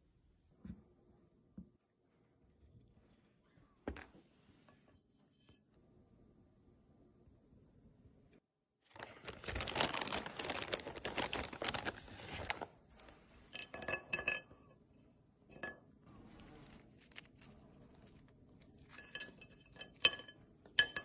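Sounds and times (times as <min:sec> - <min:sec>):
crisp crunching and crackling: 0:08.9 - 0:12.8, 0:16.2 - 0:19.0.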